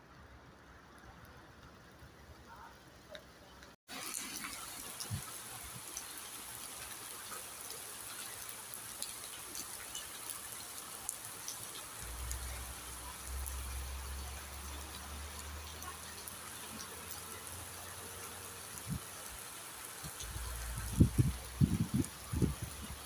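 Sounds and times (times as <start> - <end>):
steady rain falling: 0.0 - 23.0
raindrops ticking: 0.6 - 18.0.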